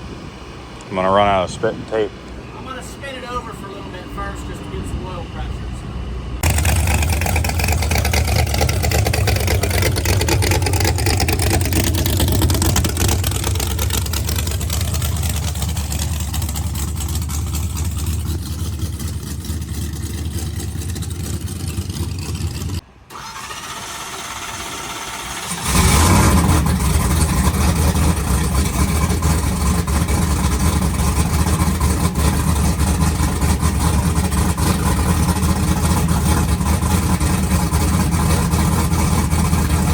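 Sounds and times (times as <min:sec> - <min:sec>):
truck engine running: 0:00.0 - 0:39.9
engine starter cranking: 0:06.4 - 0:39.9.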